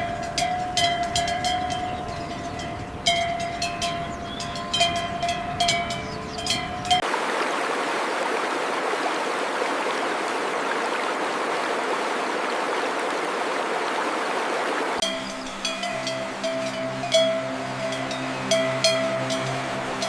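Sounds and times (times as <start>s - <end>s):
stream water rushing: 0.0s - 20.0s
steady hum: 15.0s - 20.0s.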